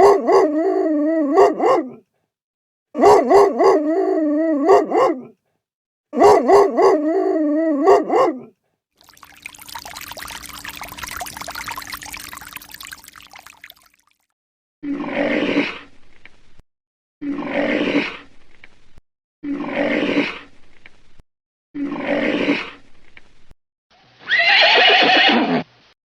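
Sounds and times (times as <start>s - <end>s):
horse whinny falling in pitch: 24.3s - 25.6s.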